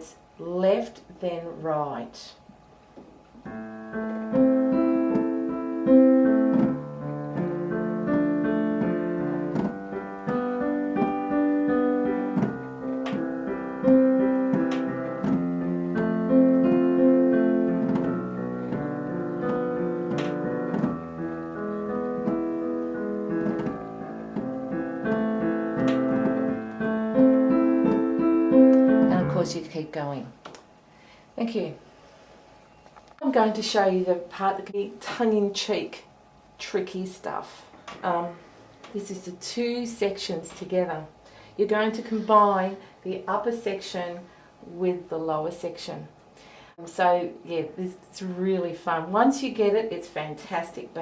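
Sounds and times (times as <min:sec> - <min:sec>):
piano broken chords: 0:03.4 - 0:30.4.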